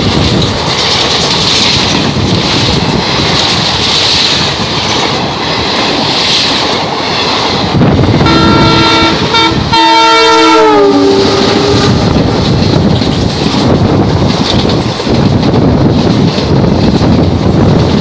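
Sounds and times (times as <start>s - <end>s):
train coaches clattering past: 0.0s - 18.0s
locomotive horn blasts: 8.2s - 12.0s.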